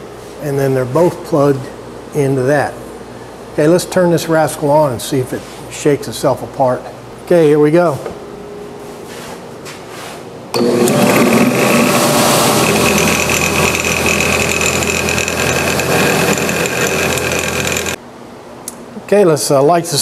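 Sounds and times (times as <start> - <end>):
shop vacuum running: 4.3 - 18.0
belt sander running: 10.6 - 18.0.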